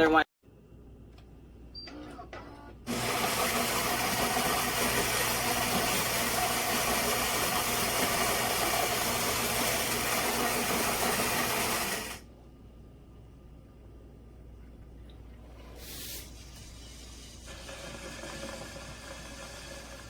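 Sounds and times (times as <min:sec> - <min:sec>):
coffee grinder grinding beans: 0:02.9 - 0:12.2, 0:17.5 - 0:20.0.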